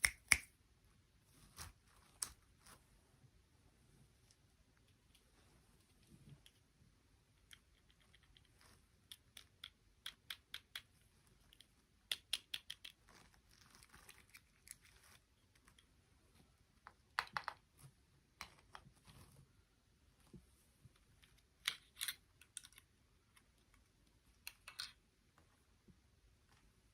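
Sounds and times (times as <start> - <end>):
small plastic pieces clicking: 11.5 - 13.1, 21.6 - 22.9.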